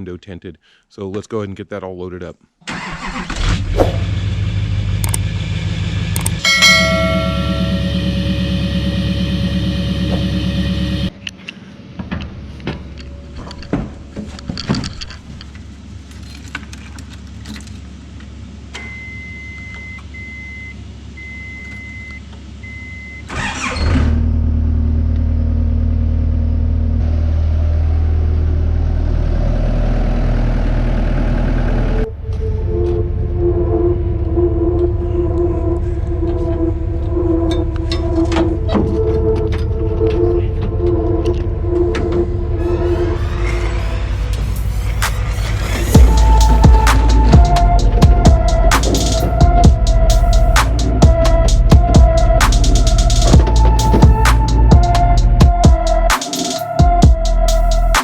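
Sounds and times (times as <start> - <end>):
skid steer engine running: 3.6 - 11.3, 22.6 - 56.2
high beeping tone: 6.5 - 11.1, 42.2 - 58.0.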